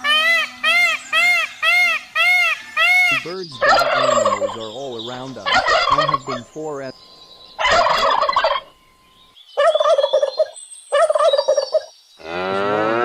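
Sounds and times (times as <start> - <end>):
turkey gobbling: 0.0 - 6.9, 7.6 - 8.7, 9.6 - 11.9
cow mooing: 12.2 - 13.0.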